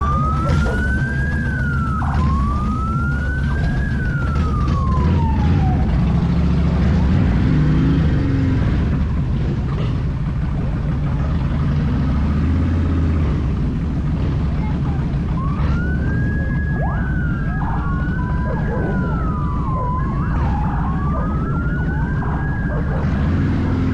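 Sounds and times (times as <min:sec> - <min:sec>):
siren wailing: 0:00.0 - 0:08.8, 0:15.2 - 0:23.9
low rumble of vehicle engines: 0:00.0 - 0:23.9.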